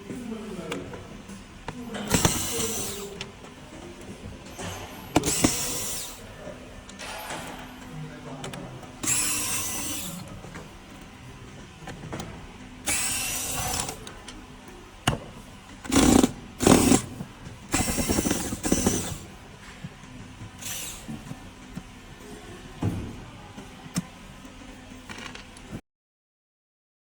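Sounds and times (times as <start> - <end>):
power drill-driver bursts: 2.1 - 3.0, 5.1 - 6.2, 9.0 - 10.2, 12.9 - 14.0, 15.9 - 17.1, 17.7 - 19.2, 20.6 - 21.1.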